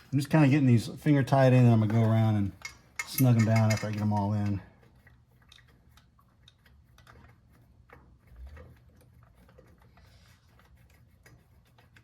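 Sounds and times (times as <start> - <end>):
bolts threaded by hand clicking: 1.7 - 4.7.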